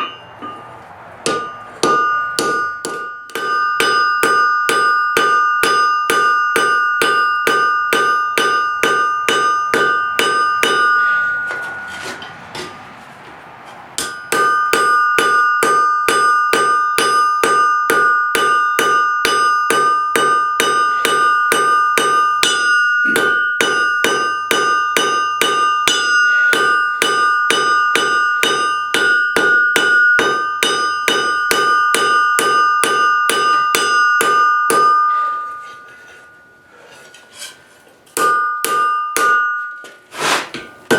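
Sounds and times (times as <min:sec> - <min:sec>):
anvil ringing: 0:00.0 - 0:12.8, 0:14.0 - 0:37.5, 0:38.1 - 0:40.9
hammer striking steel on anvil: 0:00.0 - 0:12.8, 0:14.0 - 0:40.9.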